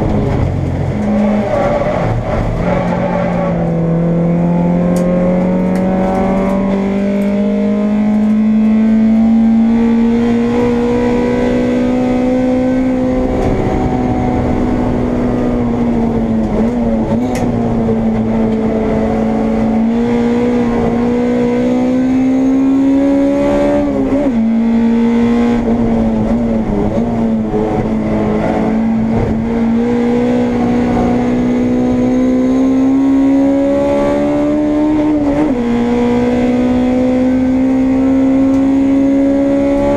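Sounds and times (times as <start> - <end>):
race car engine at high revs: 0.0 - 39.9
road noise: 0.0 - 39.9
wind noise: 8.0 - 21.6, 22.7 - 32.4.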